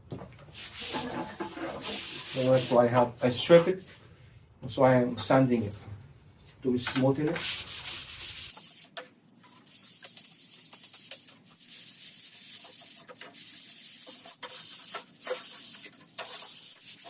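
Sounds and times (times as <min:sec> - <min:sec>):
sandpaper rubbing wood: 0:00.6 - 0:01.1, 0:01.8 - 0:02.8, 0:07.4 - 0:08.9, 0:09.6 - 0:17.0.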